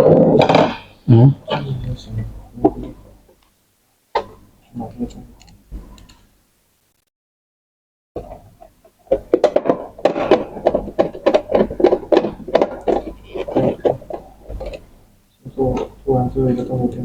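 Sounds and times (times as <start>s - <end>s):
plastic parts clicking and clattering: 9.0s - 14.9s.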